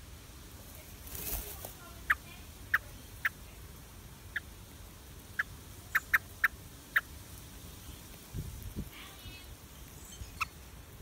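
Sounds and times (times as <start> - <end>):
bird chirping: 2.0 - 7.2, 9.0 - 11.0.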